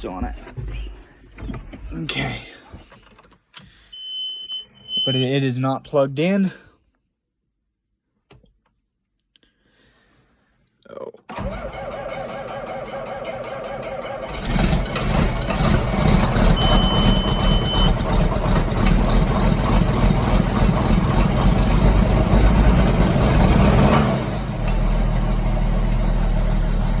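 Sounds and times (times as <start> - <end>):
starter motor cranking: 11.3 - 23.5
diesel engine running: 11.4 - 27.0.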